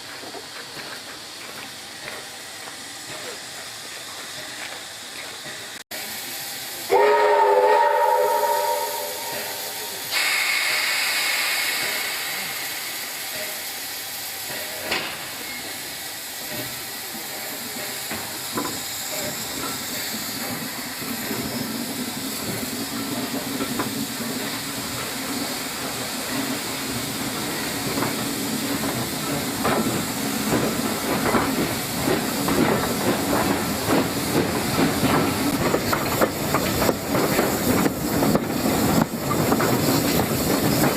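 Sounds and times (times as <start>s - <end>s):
loud hiss of steam: 0.0s - 40.9s
train rumble with rhythmic clatter: 0.0s - 40.9s
steam locomotive whistle: 6.8s - 11.2s.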